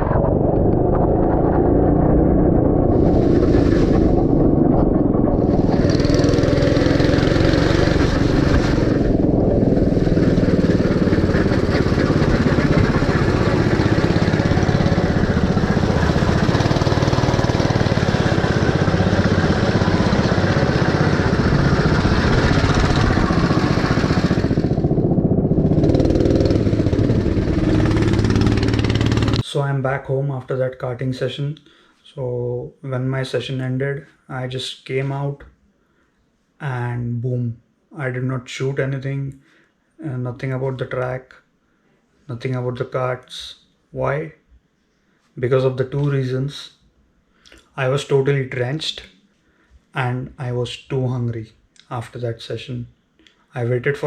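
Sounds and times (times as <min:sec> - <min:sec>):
go-kart engine running: 0:00.2 - 0:29.4.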